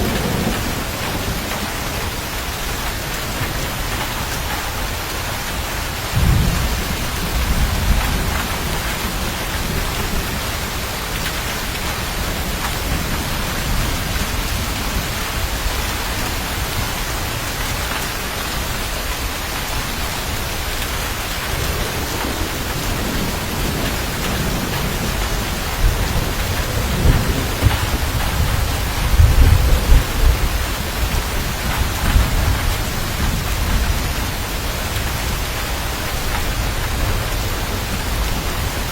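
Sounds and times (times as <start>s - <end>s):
steady rain: 0.0s - 38.9s
thunder rumbling: 0.0s - 38.9s.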